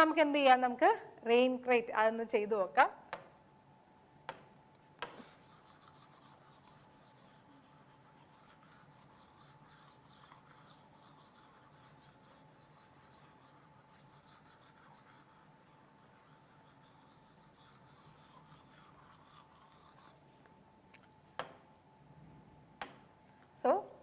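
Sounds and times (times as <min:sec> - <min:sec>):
pen scratching while writing: 0:05.0 - 0:20.2.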